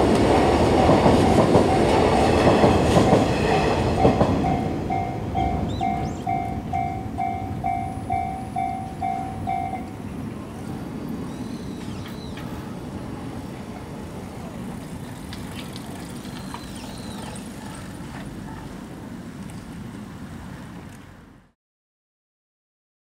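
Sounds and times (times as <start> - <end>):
train wheels rumbling on rail: 0.0 - 21.4
wheel squeals: 11.2 - 12.6.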